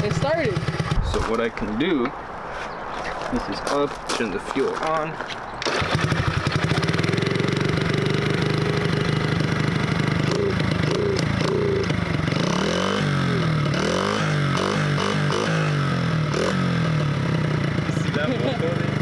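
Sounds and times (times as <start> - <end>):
dirt bike engine revving: 0.0 - 1.2, 5.6 - 19.0.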